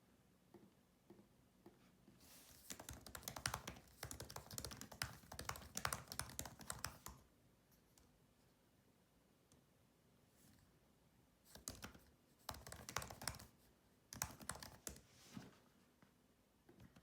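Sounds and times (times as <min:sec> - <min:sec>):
soft keyboard typing: 0:00.5 - 0:07.3, 0:11.5 - 0:15.1.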